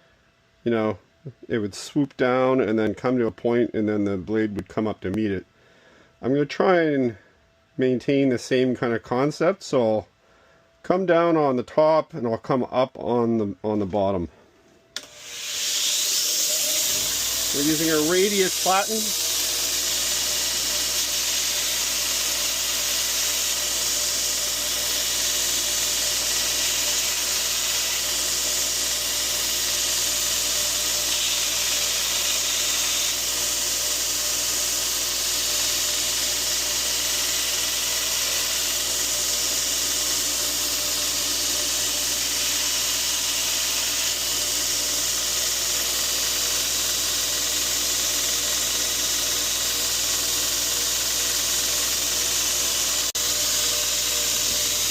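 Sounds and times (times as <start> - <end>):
belt grinder grinding steel: 15.0 - 54.9.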